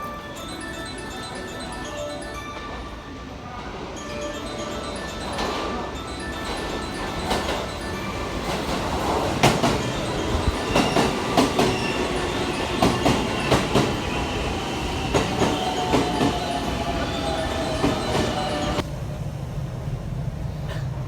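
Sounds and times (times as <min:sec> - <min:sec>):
train rumble: 0:02.6 - 0:21.0
train wheels clacking over joints: 0:08.4 - 0:18.8.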